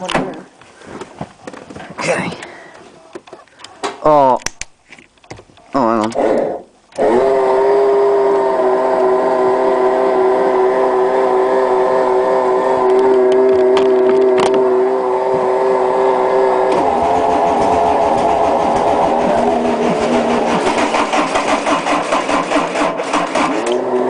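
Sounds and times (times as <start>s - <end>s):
diesel engine catching: 6.1s - 24.0s
starter motor whine: 6.2s - 24.0s.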